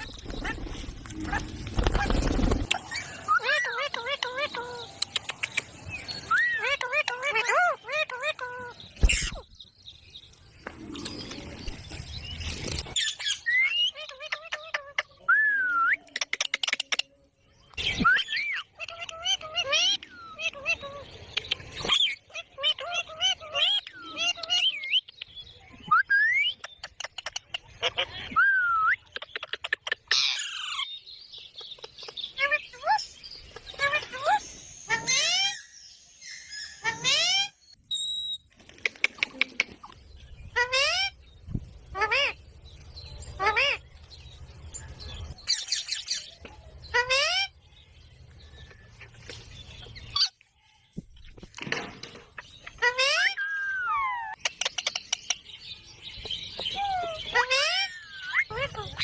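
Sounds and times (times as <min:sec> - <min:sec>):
parakeet screeching and calling: 0:00.0 - 0:04.8, 0:06.2 - 0:09.4, 0:21.8 - 0:25.0, 0:30.1 - 0:30.9, 0:33.6 - 0:37.6, 0:40.6 - 0:41.2, 0:41.9 - 0:42.4, 0:43.4 - 0:43.8, 0:46.9 - 0:47.6, 0:52.7 - 0:54.4, 0:56.7 - 0:59.0
parakeet sharp clicks: 0:05.0 - 0:05.8.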